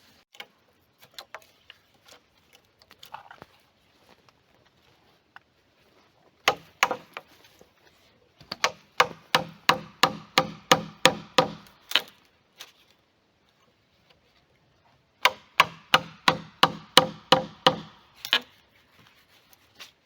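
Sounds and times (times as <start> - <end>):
hand tool striking wood: 6.5 - 7.3, 8.4 - 12.1, 15.2 - 18.5.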